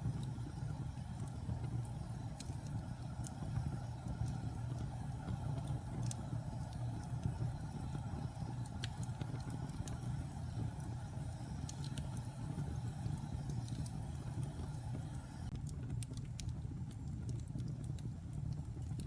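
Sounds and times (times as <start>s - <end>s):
logs crackling and popping: 0.0s - 19.0s
low rumble of flames: 0.0s - 19.0s.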